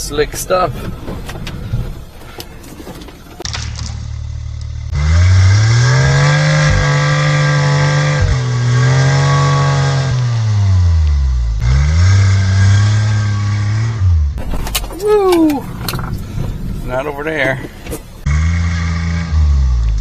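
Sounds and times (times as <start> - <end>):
truck engine revving hard: 4.8 - 14.3, 18.2 - 20.0.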